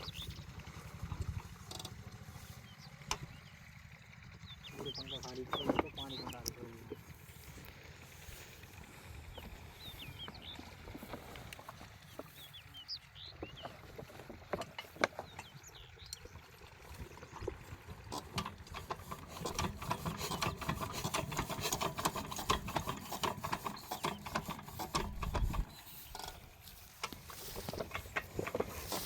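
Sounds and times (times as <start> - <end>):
birds chirping: 0.0 - 29.0
rapid mechanical clattering: 17.4 - 29.0.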